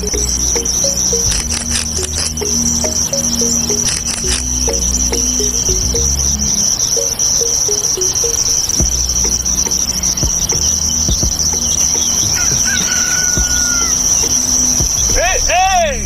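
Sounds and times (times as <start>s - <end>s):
crickets chirring: 0.0s - 15.2s
soft low thumps: 4.2s - 6.6s, 8.8s - 12.8s, 13.4s - 14.0s, 14.6s - 15.4s.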